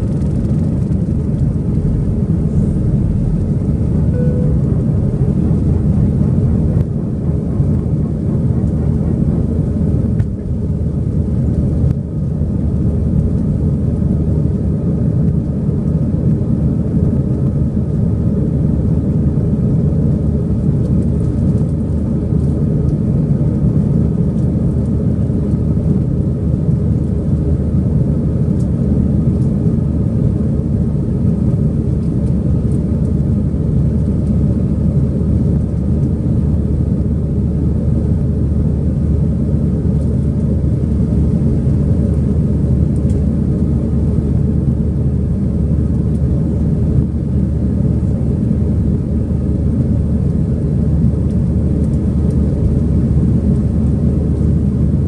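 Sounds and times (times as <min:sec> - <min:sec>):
airliner cabin engine rumble: 0:00.0 - 0:55.0
faint steady tones: 0:04.0 - 0:05.4.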